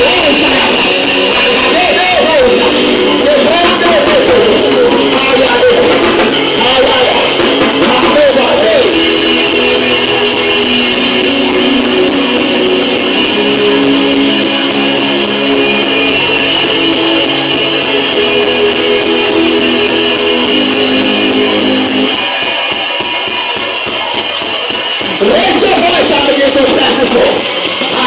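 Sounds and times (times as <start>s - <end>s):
instrumental worship music with guitar: 0.0s - 22.8s.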